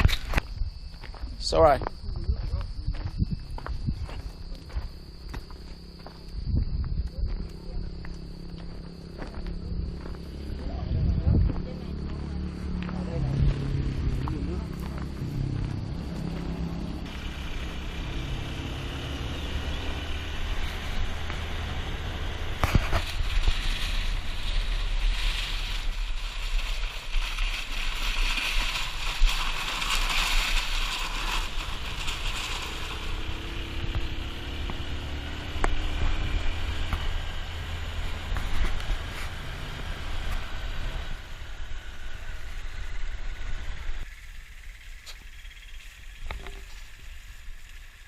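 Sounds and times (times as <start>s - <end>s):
wind rushing on microphone: 0.0s - 4.6s, 6.3s - 8.3s, 9.6s - 17.1s
low rumble: 0.0s - 47.9s
motorbike engine running: 27.5s - 44.8s.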